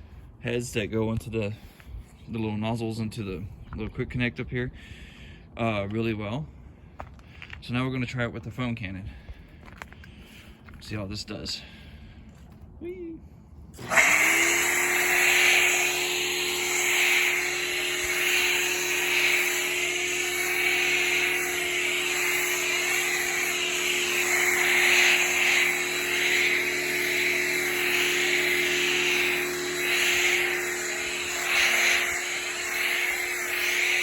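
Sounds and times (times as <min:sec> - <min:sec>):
pressure washer running: 0:13.8 - 0:34.0
hiss of water spraying: 0:13.9 - 0:34.0.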